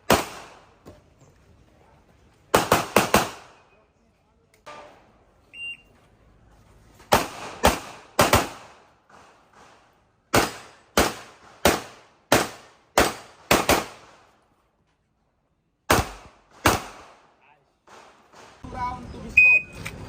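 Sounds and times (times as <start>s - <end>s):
pistol shots: 0.0s - 0.7s, 2.5s - 3.6s, 7.1s - 14.2s, 15.9s - 17.3s.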